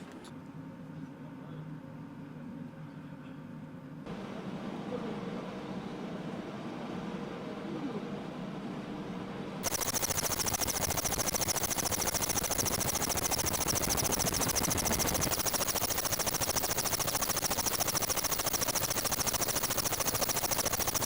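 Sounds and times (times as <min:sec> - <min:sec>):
helicopter rotor beat: 0:09.6 - 0:21.0
high turbine whine: 0:09.6 - 0:21.0.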